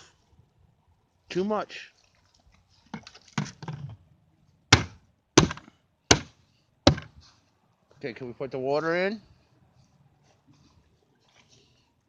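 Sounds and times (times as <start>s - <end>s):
soft rustling and handling: 1.8s - 4.6s, 9.3s - 12.0s
sharp knocks on hard object: 4.7s - 6.3s, 6.9s - 7.1s.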